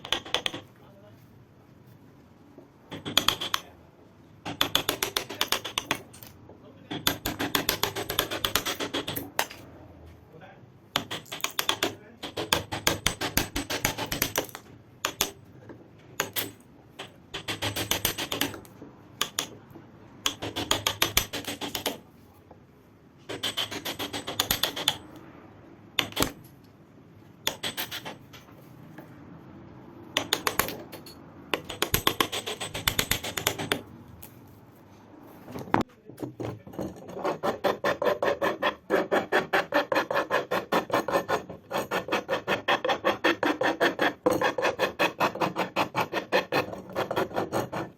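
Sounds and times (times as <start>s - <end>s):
hand file scraping: 23.3s - 25.0s, 31.6s - 33.8s, 36.9s - 47.9s.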